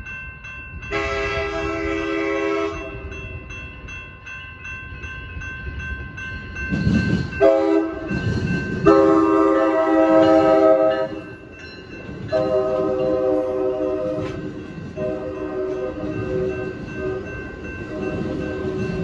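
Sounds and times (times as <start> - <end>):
railroad crossing bell ringing: 0.0 - 19.0
train rumble: 0.0 - 19.0
train horn blasts: 0.9 - 3.1, 7.4 - 8.2, 8.8 - 11.2, 12.3 - 14.4, 15.0 - 19.0.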